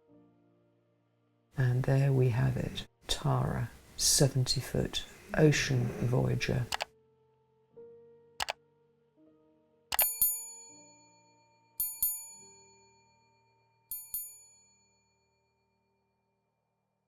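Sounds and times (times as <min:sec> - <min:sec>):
small bell ringing: 0:10.0 - 0:13.2, 0:13.9 - 0:15.3.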